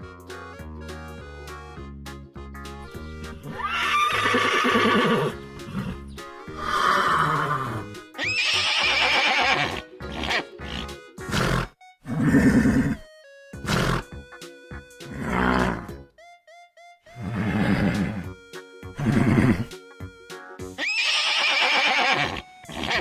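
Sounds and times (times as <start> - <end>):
background music: 0.0 - 23.0
horse whinnying: 3.5 - 6.0, 6.6 - 10.4, 11.3 - 13.0, 13.6 - 14.0, 15.2 - 15.9, 17.2 - 18.3, 19.0 - 19.7, 20.8 - 23.0.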